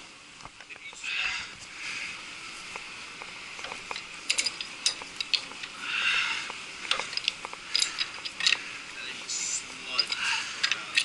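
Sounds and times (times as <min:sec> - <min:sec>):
hand tools clicking on metal: 0:03.6 - 0:05.8, 0:06.9 - 0:08.6, 0:09.9 - 0:11.0.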